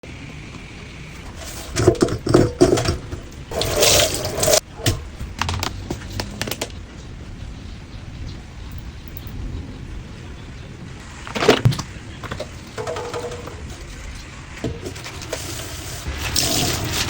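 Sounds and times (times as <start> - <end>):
rushing tap water: 0.1 - 4.6, 12.4 - 17.0
scattered clicks: 8.7 - 9.4.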